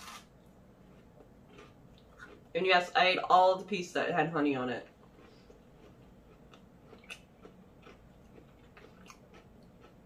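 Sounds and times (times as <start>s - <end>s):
chewing crunchy food: 0.8s - 2.6s, 4.8s - 10.0s.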